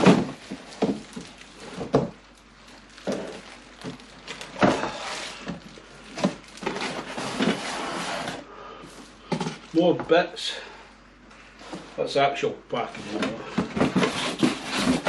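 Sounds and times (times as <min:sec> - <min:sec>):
cardboard box thumps and scrapes: 0:13.2 - 0:15.0.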